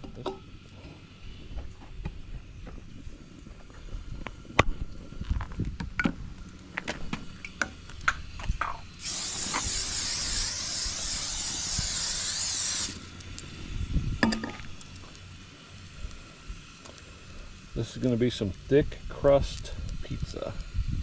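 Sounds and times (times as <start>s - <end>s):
aerosol spray can hissing: 9.0s - 13.2s.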